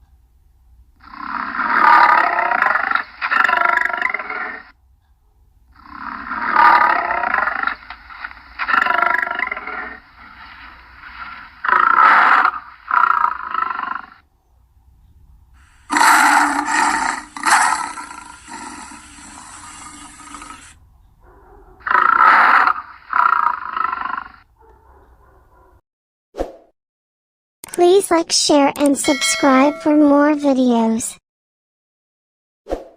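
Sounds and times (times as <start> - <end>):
lion roaring: 1.0 - 4.7, 5.7 - 7.8, 8.6 - 10.4, 15.9 - 20.8, 21.8 - 24.5.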